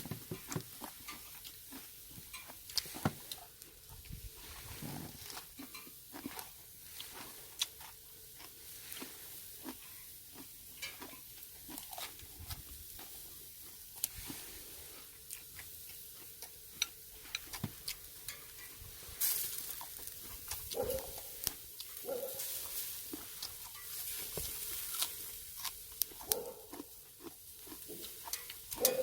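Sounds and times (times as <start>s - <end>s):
meat grilling crackles and pops: 0.0s - 29.0s.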